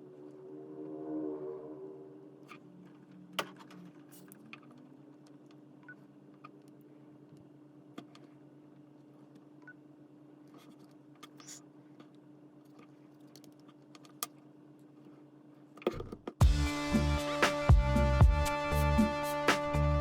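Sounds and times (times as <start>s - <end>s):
loud music: 16.4s - 20.0s.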